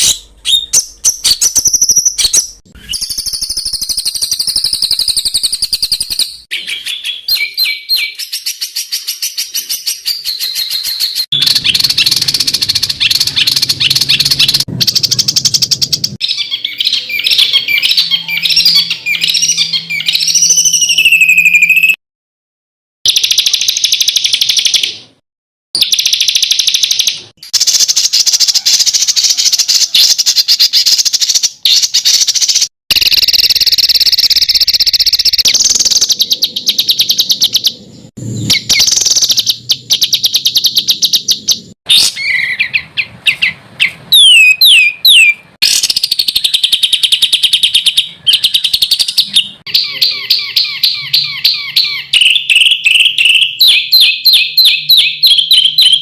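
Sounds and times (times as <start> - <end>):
downward-slurred whistles: 0.0 - 22.0
repeated bird notes: 0.0 - 22.0, 23.1 - 25.2, 25.8 - 56.0
songbirds singing rapid trills: 0.0 - 22.0, 25.8 - 56.0.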